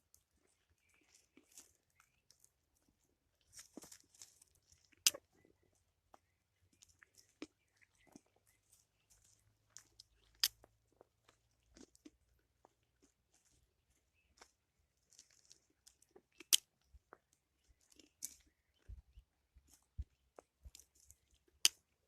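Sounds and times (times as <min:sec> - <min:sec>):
crunching steps on forest floor: 0:03.5 - 0:05.2, 0:06.8 - 0:16.2.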